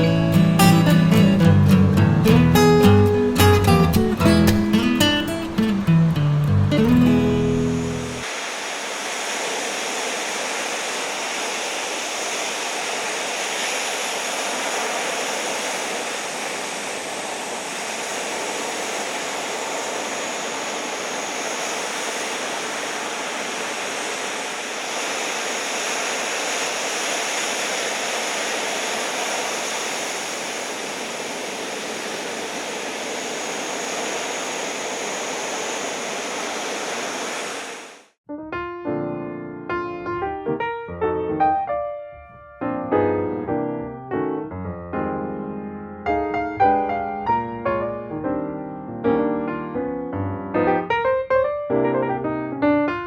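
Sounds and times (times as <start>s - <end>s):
ocean surf breaking: 0.0s - 38.2s, 46.1s - 48.0s.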